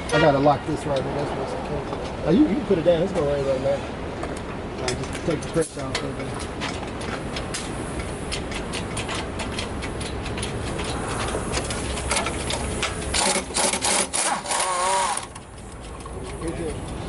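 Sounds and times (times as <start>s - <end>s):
metallic clicking and rattling: 4.3s - 17.0s.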